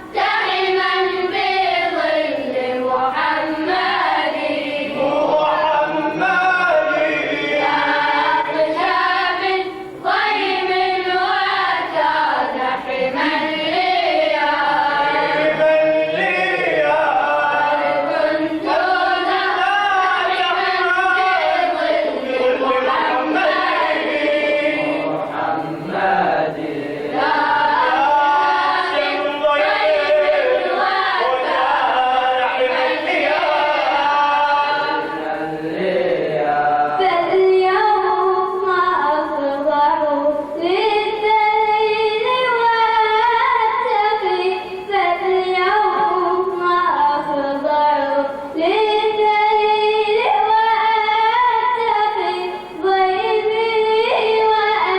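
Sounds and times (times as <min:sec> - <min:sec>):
group chanting in chorus: 0:00.0 - 0:38.0.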